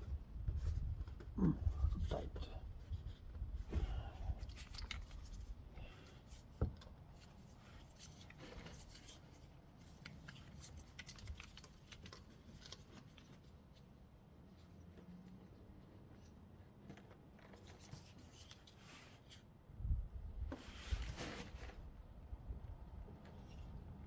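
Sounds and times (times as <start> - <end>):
hands rubbing and scraping oil filter: 2.0 - 13.9, 15.9 - 19.5.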